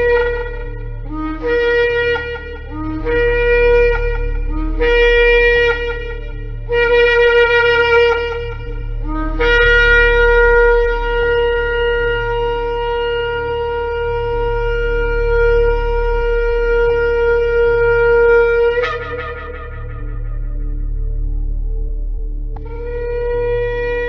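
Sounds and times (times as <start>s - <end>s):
shofar blast: 0.0s - 21.4s.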